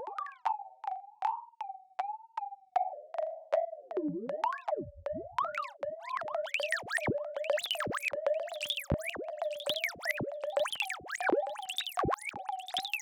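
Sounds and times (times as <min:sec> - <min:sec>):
rapid electronic chirps and clicks: 0:06.5 - 0:13.0.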